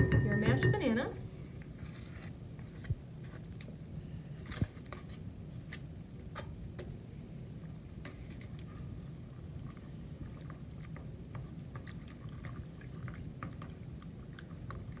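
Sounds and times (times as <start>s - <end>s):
low steady rumble: 0.0s - 1.9s
wet batter squishing: 1.6s - 6.0s, 6.8s - 15.0s.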